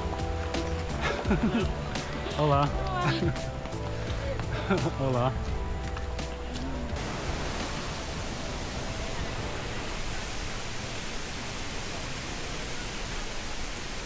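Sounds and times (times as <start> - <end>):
waterfall roaring: 7.0 - 14.0.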